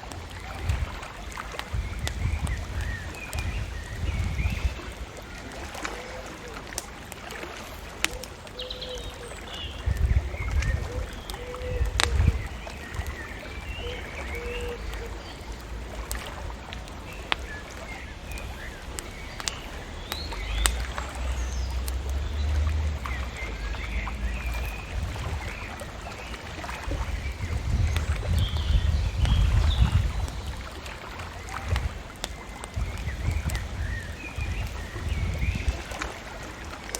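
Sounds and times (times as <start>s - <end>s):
bonfire crackling: 0.0s - 36.9s
small birds chirping: 0.0s - 36.9s
low rumbling: 9.8s - 36.0s.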